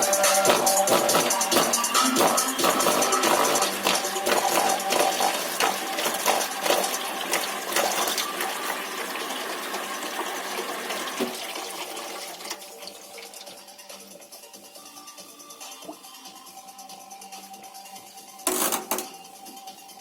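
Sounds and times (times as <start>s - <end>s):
water splashing and sloshing: 0.0s - 13.8s.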